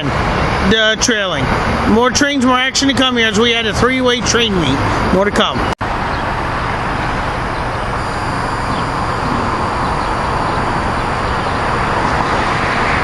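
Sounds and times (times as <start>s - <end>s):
train wheels rumbling on rails: 8.7s - 13.0s.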